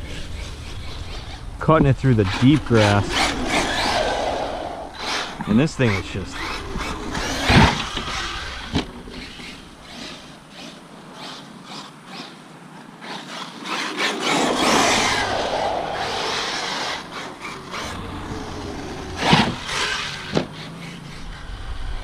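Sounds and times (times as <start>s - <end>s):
rc truck motor whine: 0.0s - 22.0s
tyres rushing through grass: 0.8s - 21.3s
sharp thumps: 14.3s - 21.0s.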